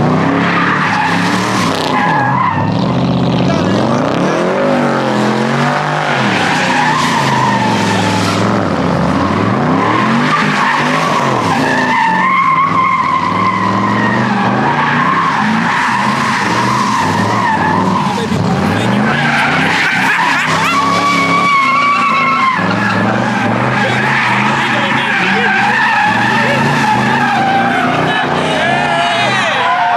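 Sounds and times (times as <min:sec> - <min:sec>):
car engine revving: 0:00.0 - 0:29.9
tyres squealing: 0:09.2 - 0:29.9.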